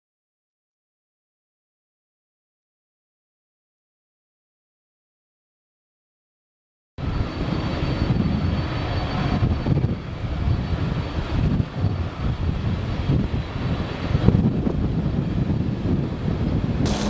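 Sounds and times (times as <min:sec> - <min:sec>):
airliner engines running: 0:07.0 - 0:17.0.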